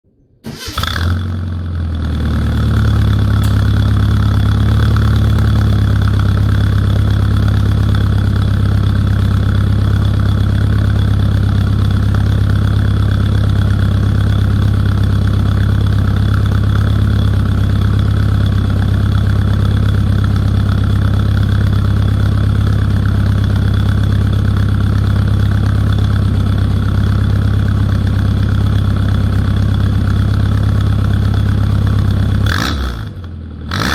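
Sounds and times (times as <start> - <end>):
car engine starting and idling: 0.4 - 33.9.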